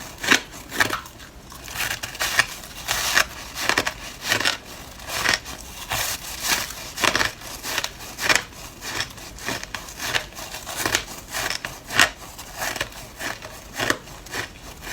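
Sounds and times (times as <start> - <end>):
teeth crunching ice: 0.0 - 14.9.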